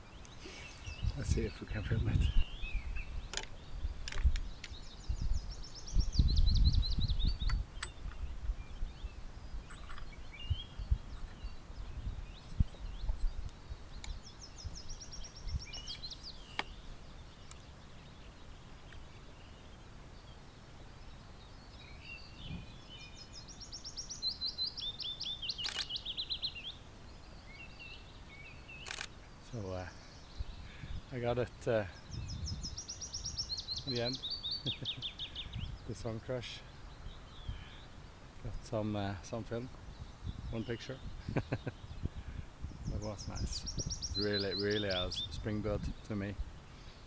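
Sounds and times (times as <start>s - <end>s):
songbird singing: 0.0s - 47.0s
sharp clicks: 25.6s - 26.0s, 28.8s - 29.2s.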